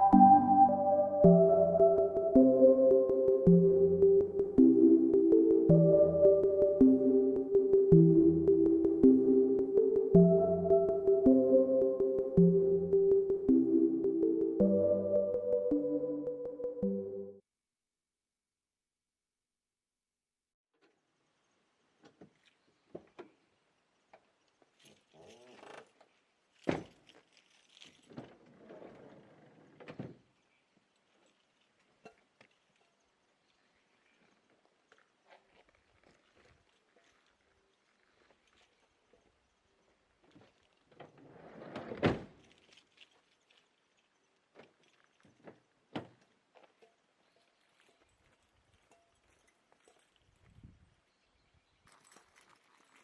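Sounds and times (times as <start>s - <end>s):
rustling: 24.6s - 29.7s.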